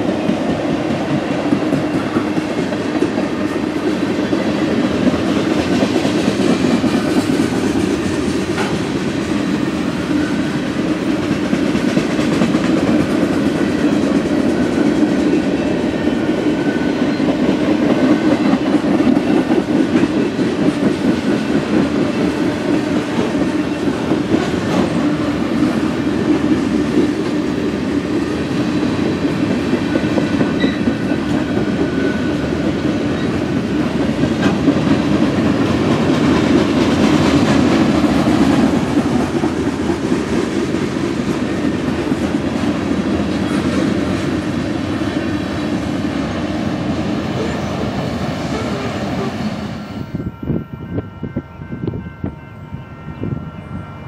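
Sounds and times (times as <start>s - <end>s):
wheels clacking over rail joints: 0.0s - 49.4s
freight train rolling by: 0.0s - 54.0s
high wheel squeals: 30.6s - 32.5s.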